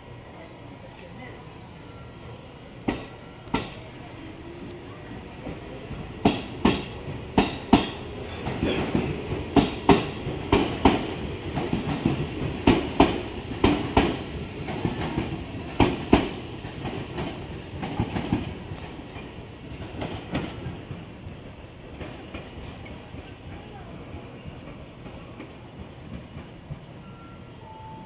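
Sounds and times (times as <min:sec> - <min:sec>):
train running rumble: 0:04.6 - 0:27.0
train wheels clacking over rail joints: 0:06.2 - 0:21.1.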